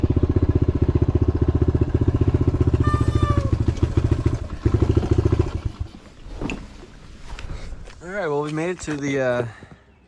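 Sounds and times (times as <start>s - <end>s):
dirt bike engine putting: 1.7s - 7.5s.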